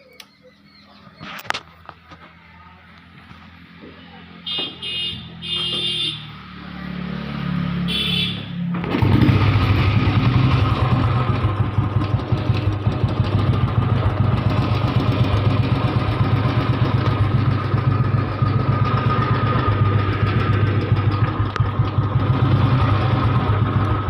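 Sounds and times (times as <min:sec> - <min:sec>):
motorcycle engine idling: 0:07.9 - 0:24.0.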